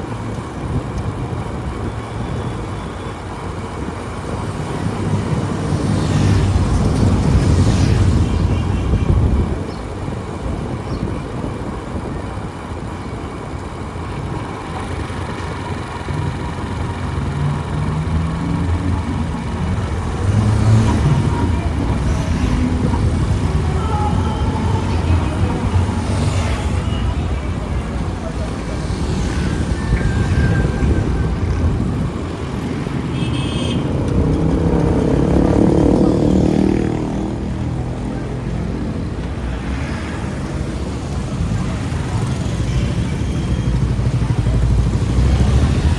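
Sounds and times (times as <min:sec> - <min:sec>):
motorbike engine rumble: 0:00.0 - 0:39.6
road noise: 0:00.0 - 0:45.9
street traffic: 0:00.0 - 0:45.9
vehicle engine passing: 0:33.8 - 0:39.0.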